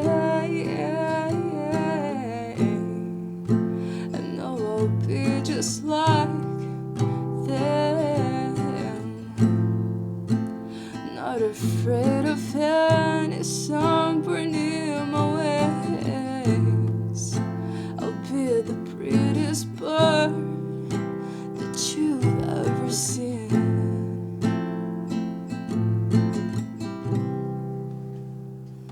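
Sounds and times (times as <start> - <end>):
person singing: 0.0 - 3.4, 4.0 - 9.4, 10.9 - 20.8, 21.6 - 24.2
acoustic guitar strumming: 0.0 - 28.9.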